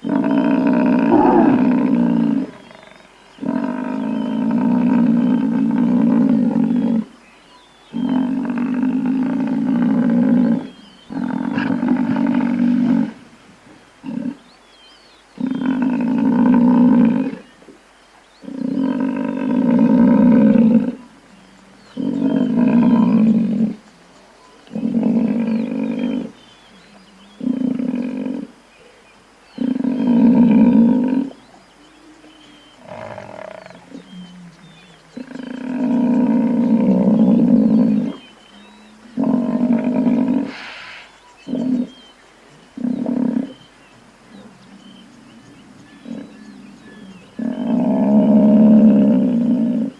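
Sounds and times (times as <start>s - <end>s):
buffalo low drawn-out calls: 0.0s - 7.1s.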